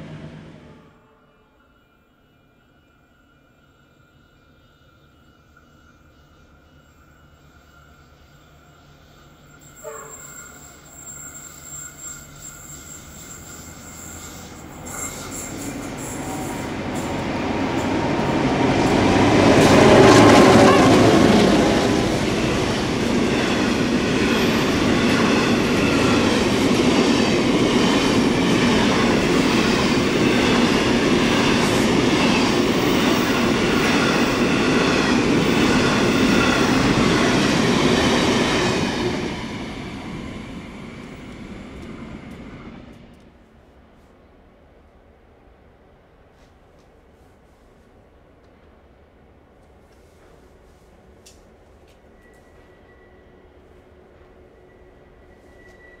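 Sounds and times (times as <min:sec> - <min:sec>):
diesel locomotive engines: 0:00.0 - 0:56.0.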